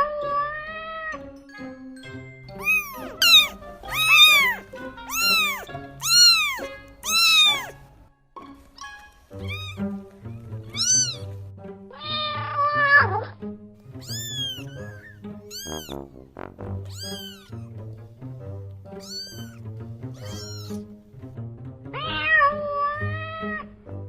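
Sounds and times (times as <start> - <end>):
background music: 0.0 - 24.0
cat meowing: 2.6 - 7.8, 8.8 - 13.3, 14.0 - 16.1, 16.9 - 17.7, 18.9 - 19.6, 20.2 - 20.9, 22.0 - 23.7.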